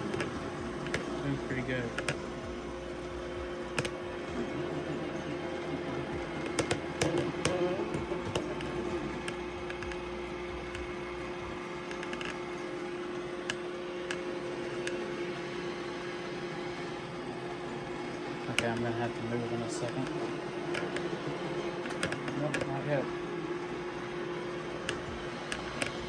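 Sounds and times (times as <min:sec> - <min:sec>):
robot vacuum motor hum: 0:00.0 - 0:26.0
sharp clicks and knocks: 0:01.9 - 0:02.3, 0:03.7 - 0:04.0, 0:06.2 - 0:10.9, 0:11.8 - 0:12.4, 0:21.8 - 0:22.7, 0:24.8 - 0:26.0.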